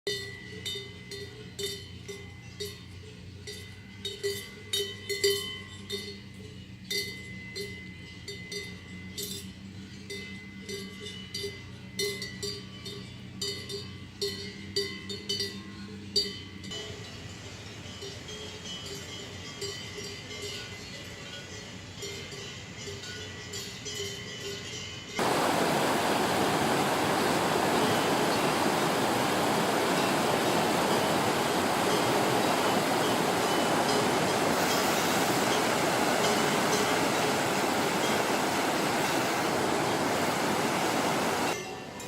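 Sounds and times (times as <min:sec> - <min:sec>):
cowbells clanking: 0:00.1 - 0:25.8, 0:27.4 - 0:40.9
stream water rushing: 0:25.2 - 0:41.6.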